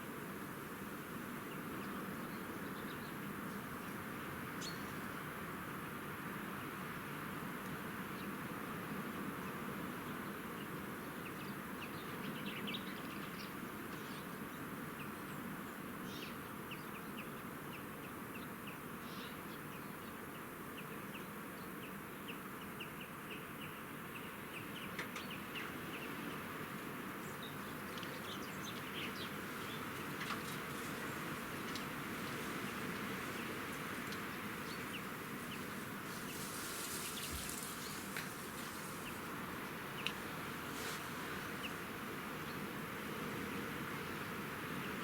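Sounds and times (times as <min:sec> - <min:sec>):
outdoor background hiss: 0:00.0 - 0:45.0
small birds chirping: 0:20.8 - 0:45.0.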